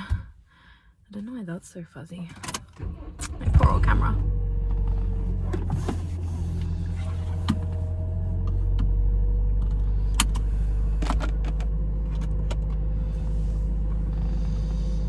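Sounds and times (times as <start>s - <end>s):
engine and road rumble: 2.4s - 15.0s.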